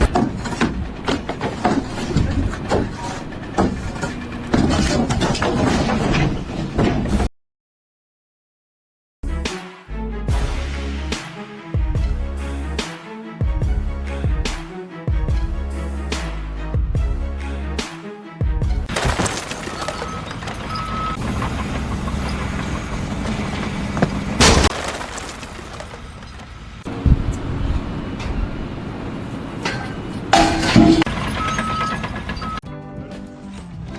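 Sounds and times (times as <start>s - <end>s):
engine rumbling: 0.0s - 6.8s, 18.9s - 32.6s
clanks and knocks: 0.0s - 7.2s, 18.9s - 22.6s.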